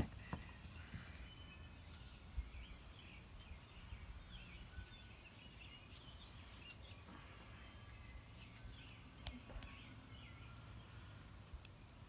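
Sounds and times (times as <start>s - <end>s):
faint bird chirps: 0.1s - 12.0s.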